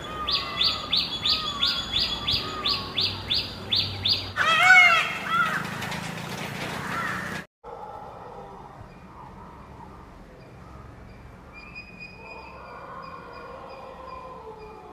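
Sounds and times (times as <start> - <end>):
bird calls: 0.0 - 5.8.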